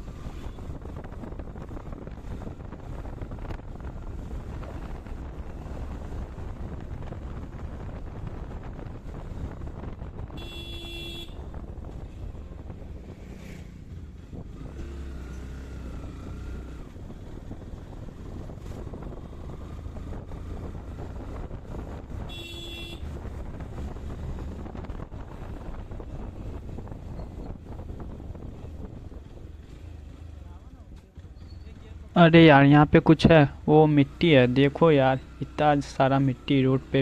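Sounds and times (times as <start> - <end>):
wind rushing over microphone: 0.0 - 10.7, 11.3 - 15.2, 15.8 - 22.4, 23.0 - 30.0
motorcycle engine and road rumble: 0.0 - 37.0
short horn honk: 10.4 - 11.4.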